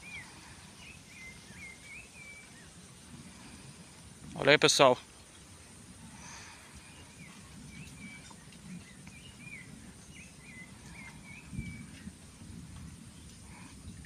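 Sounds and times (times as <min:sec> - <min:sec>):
faint bird chirps: 0:00.0 - 0:03.7, 0:06.2 - 0:12.1
low steady rumble: 0:00.0 - 0:14.0.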